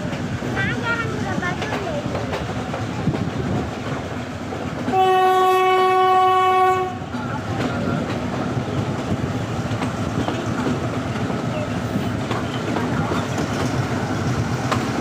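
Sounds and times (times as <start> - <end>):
train rail clatter: 0.0 - 15.0
train horn: 4.9 - 7.1.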